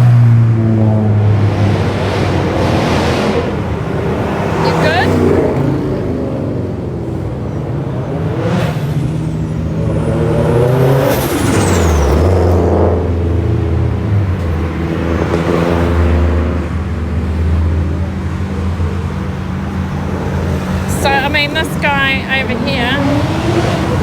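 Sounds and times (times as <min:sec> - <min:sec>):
cars passing at low speed: 0:00.0 - 0:24.0
deep engine rumble: 0:00.0 - 0:24.0.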